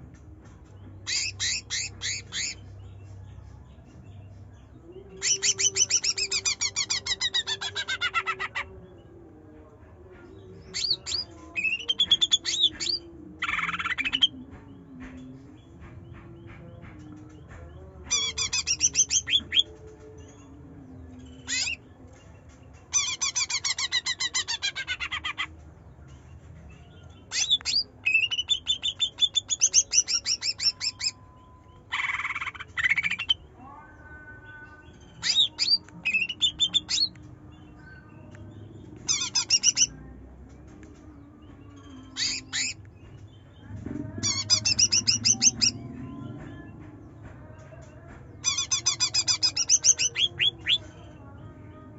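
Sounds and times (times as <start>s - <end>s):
bird singing chattering notes: 1.0s - 2.8s, 5.2s - 8.8s, 18.1s - 19.7s, 27.2s - 31.2s, 31.8s - 33.5s, 38.2s - 40.0s, 41.7s - 43.5s, 44.2s - 46.7s, 48.4s - 50.8s.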